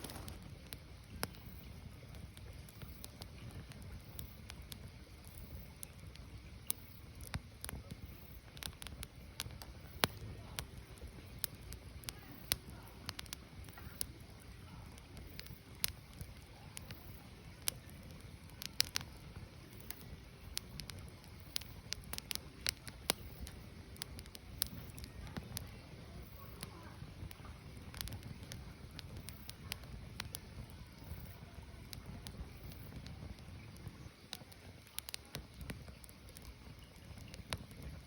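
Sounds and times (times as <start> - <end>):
fire rushing: 0.0 - 38.0
firewood crackling and popping: 0.0 - 38.0.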